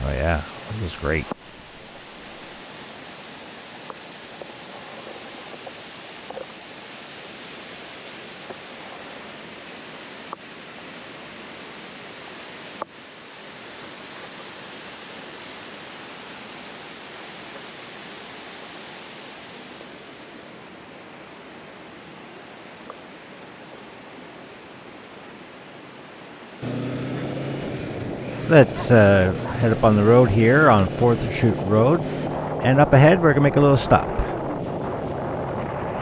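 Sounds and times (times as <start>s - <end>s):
river water rushing: 27.5s - 34.7s.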